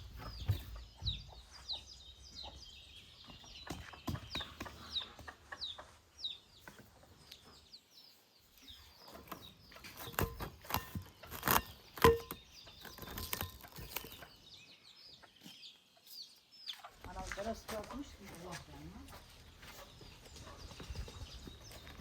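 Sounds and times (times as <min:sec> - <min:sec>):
falling bird chirps: 0:00.0 - 0:17.2
sharp knocks and clatter: 0:09.2 - 0:14.1.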